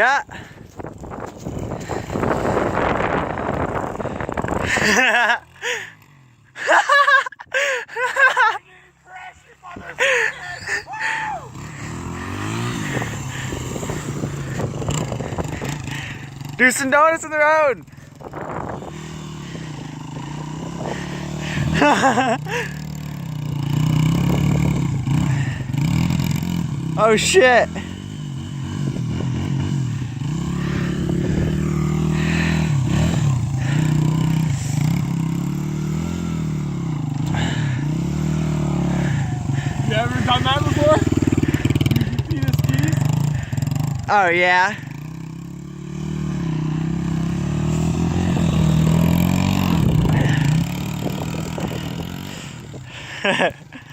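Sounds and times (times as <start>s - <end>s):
dirt bike engine revving: 0.0s - 53.9s
person shouting: 8.6s - 11.6s.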